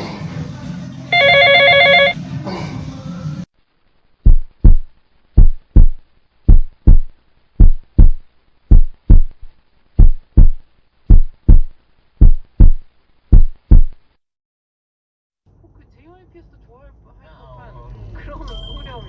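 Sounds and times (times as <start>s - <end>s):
heartbeat thumps: 4.2s - 14.0s.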